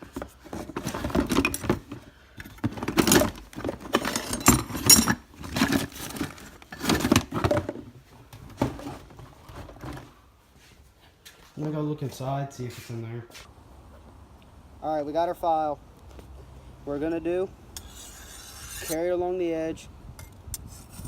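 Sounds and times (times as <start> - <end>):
metal tools clattering: 0.0 - 7.8.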